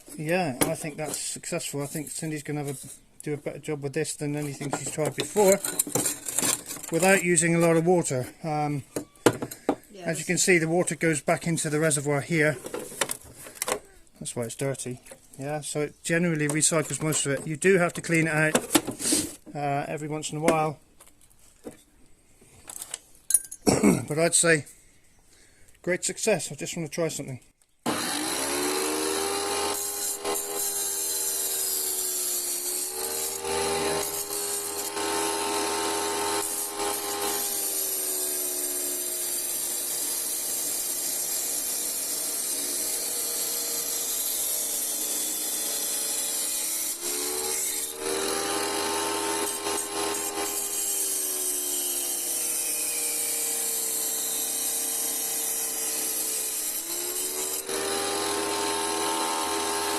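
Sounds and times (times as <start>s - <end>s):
wet saw cutting glass: 4.4s - 7.8s, 27.9s - 59.9s.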